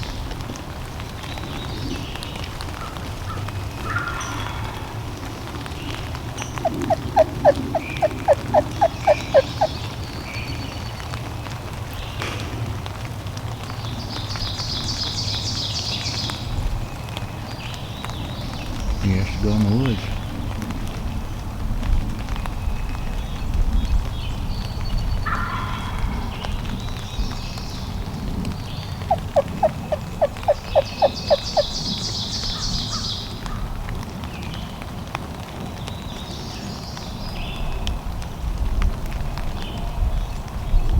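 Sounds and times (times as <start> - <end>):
wind rumble: 4.8 - 10.6, 16.4 - 32.9
songbird trilling: 6.4 - 9.8, 28.7 - 33.1
wild turkey yelping: 6.6 - 9.8, 29.0 - 32.1.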